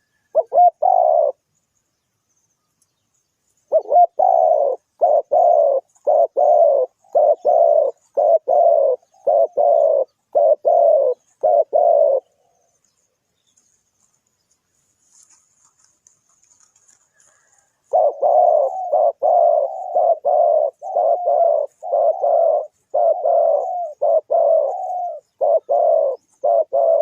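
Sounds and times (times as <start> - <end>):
dove cooing: 0.0 - 1.5, 3.6 - 12.7, 16.4 - 27.0.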